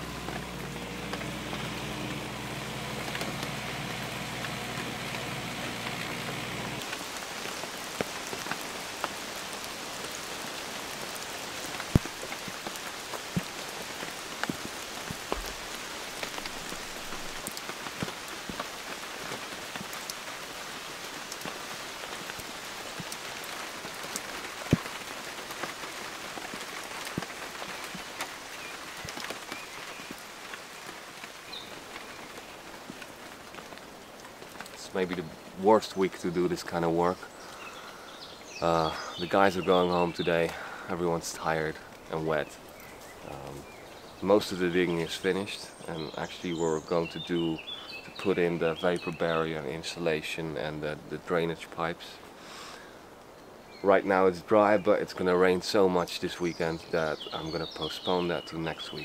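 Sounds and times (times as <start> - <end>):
excavator engine running: 0.0 - 7.0
rain hiss: 0.0 - 59.0.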